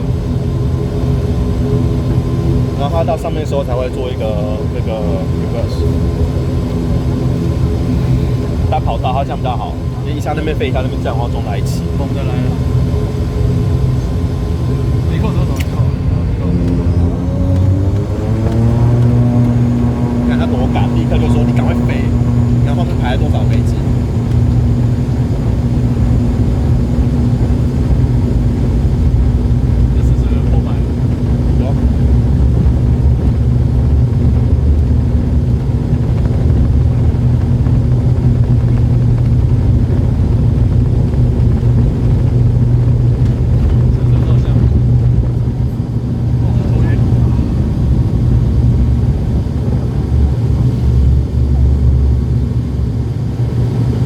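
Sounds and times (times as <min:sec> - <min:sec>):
airliner engines droning in cabin: 0:00.0 - 0:54.0.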